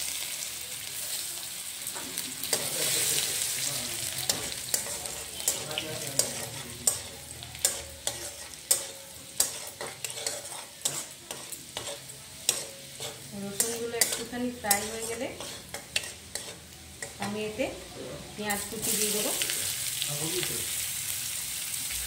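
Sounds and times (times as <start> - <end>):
garlic sizzling in oil: 0.0 - 22.0
spatula scraping pan: 2.0 - 17.6.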